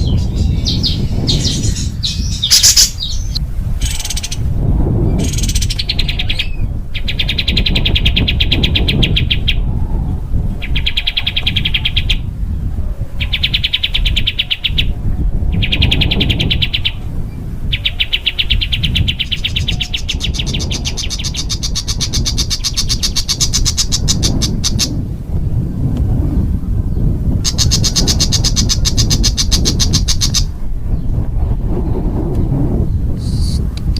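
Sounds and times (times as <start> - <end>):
songbird trilling: 0.0 - 4.5, 5.1 - 9.7, 10.6 - 12.2, 13.2 - 14.9, 15.5 - 17.0, 17.6 - 25.0, 27.4 - 30.5.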